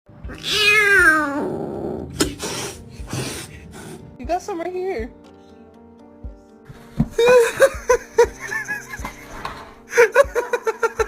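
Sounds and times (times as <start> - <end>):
person laughing: 7.2 - 11.0.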